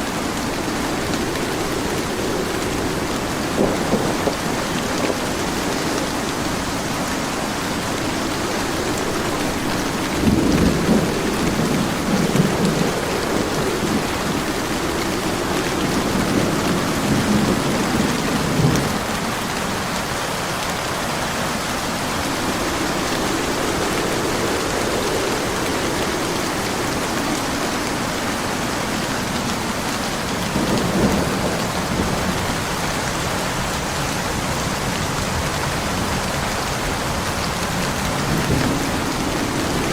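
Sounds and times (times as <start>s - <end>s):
thunder rumbling: 0.0s - 20.4s, 21.1s - 39.9s
heavy rain: 0.0s - 39.9s.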